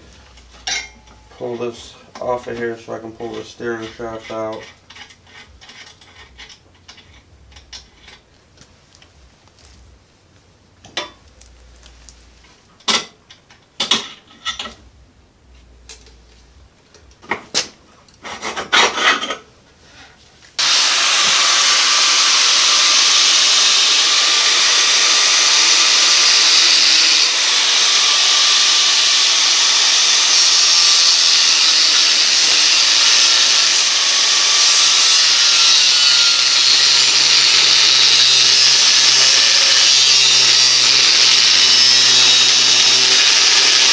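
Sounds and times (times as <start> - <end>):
power tool cutting metal pipe: 20.6 - 43.9.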